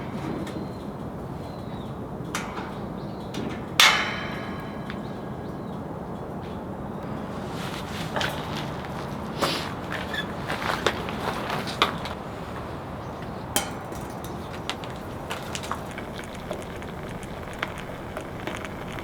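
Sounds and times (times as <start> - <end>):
sharp crackles and snaps: 13.2 - 19.0
rain hissing: 14.5 - 19.0.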